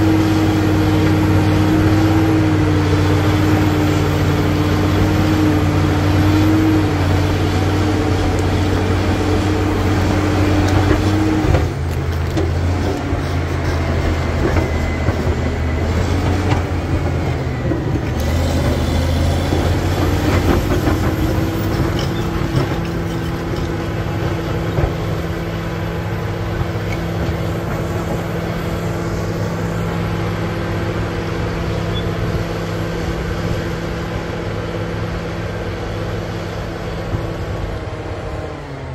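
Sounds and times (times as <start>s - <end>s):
bulldozer diesel engine under load: 0.0s - 38.9s.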